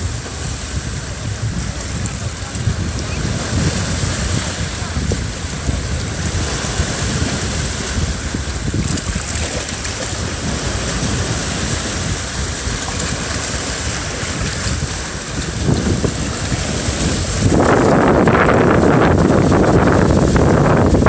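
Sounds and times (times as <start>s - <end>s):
sea surf at the shore: 0.0s - 21.0s
wind buffeting the microphone: 0.0s - 21.0s.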